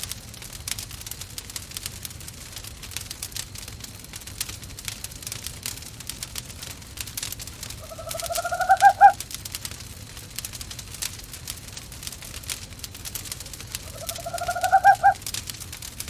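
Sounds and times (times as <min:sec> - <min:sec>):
wood fire crackling: 0:00.0 - 0:16.0
owl quavering call: 0:07.8 - 0:09.2, 0:13.8 - 0:15.2.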